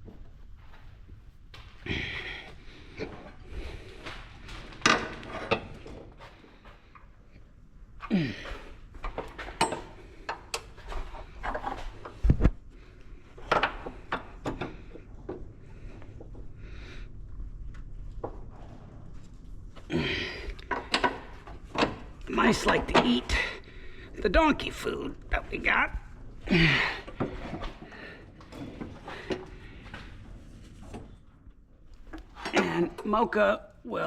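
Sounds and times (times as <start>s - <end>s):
tools and metal parts clinking: 9.0s - 12.2s.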